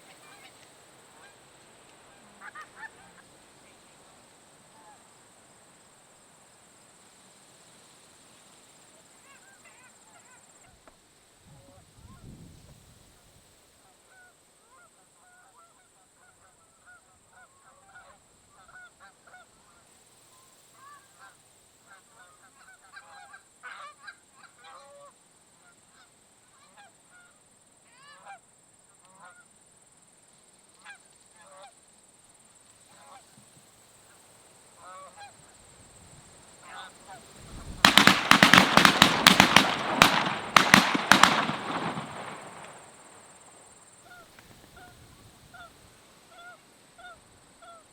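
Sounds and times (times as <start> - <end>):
rapid sharp cracks over rushing: 37.8 - 43.3
geese honking: 37.9 - 42.8.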